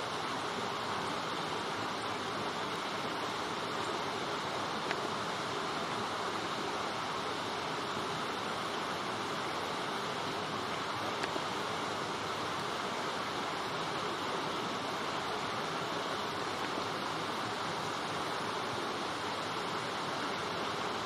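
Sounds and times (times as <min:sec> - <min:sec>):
light rain on leaves: 0:00.0 - 0:21.0
faint tick: 0:04.8 - 0:05.1, 0:11.2 - 0:11.4.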